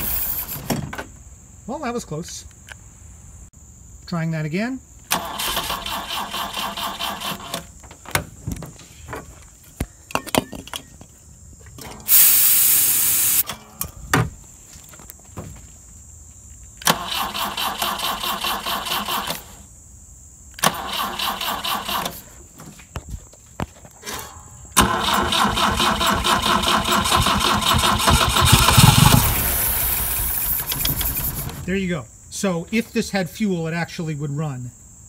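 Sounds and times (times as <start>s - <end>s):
engine starter cranking: 0.0s - 0.7s, 5.1s - 7.8s, 16.8s - 19.6s, 20.6s - 22.3s, 24.0s - 31.7s.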